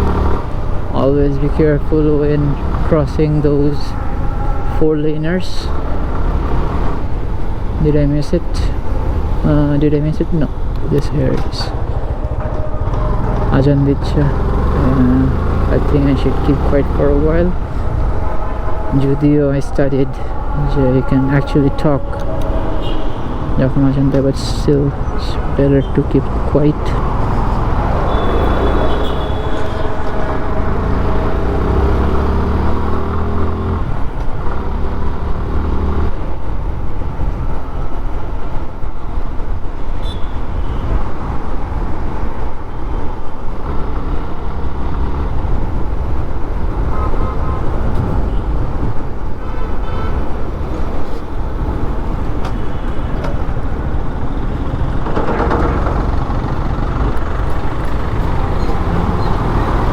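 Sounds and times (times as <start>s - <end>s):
motorcycle engine accelerating: 0.0s - 0.8s, 12.0s - 18.0s, 27.0s - 36.3s, 43.6s - 45.9s, 55.3s - 59.9s
road and wind noise: 0.0s - 59.9s
surrounding traffic: 0.0s - 59.9s.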